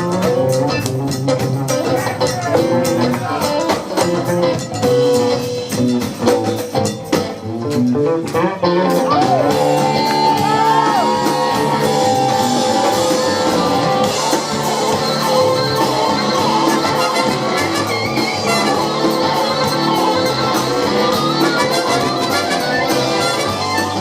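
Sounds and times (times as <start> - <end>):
soul rock band playing: 0.0 - 24.0
person singing: 8.8 - 24.0.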